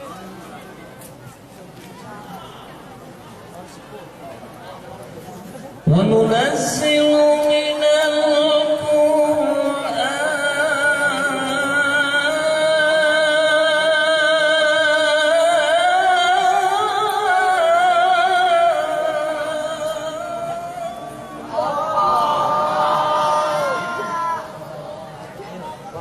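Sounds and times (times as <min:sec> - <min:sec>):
person chanting melodically: 0:05.9 - 0:24.1.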